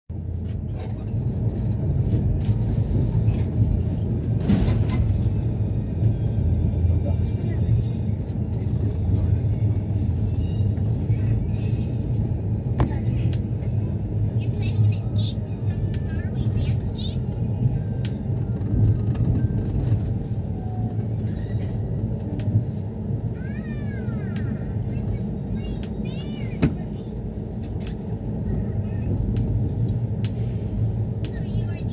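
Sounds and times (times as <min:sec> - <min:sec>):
train rumbling on rails: 0:00.1 - 0:31.9
train clatter: 0:00.3 - 0:22.8, 0:23.4 - 0:31.9.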